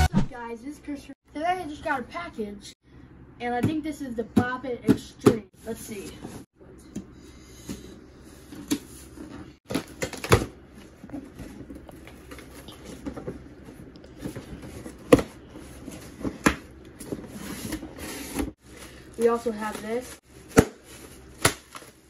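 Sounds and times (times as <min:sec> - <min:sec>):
light rustling of packaging: 0:08.4 - 0:22.0.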